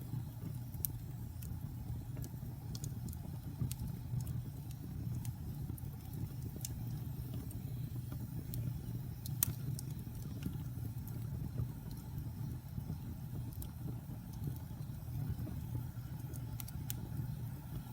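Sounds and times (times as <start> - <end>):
fire crackles and pops: 0.0 - 17.9
fire rumbling in fireplace: 0.0 - 17.9.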